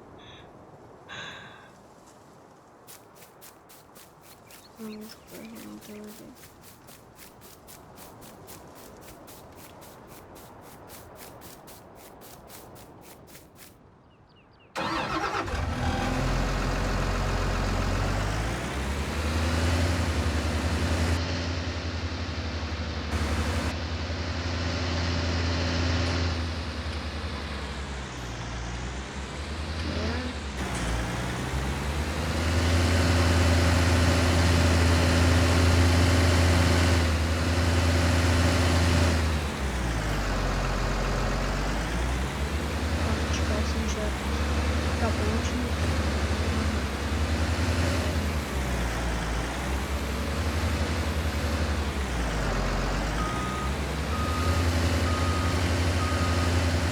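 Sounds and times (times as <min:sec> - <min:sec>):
fast even ticking: 0:02.9 - 0:13.7
truck engine revving: 0:14.8 - 0:56.9.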